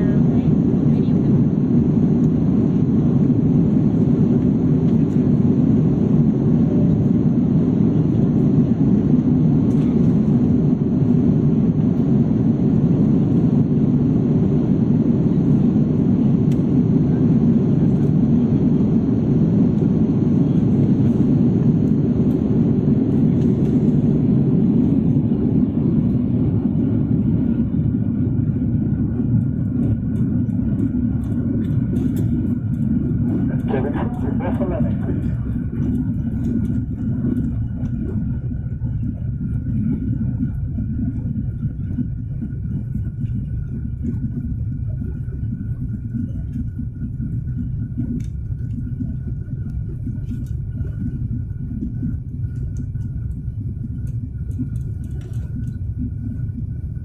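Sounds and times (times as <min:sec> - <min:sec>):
aircraft cabin roar: 0:00.0 - 0:57.0.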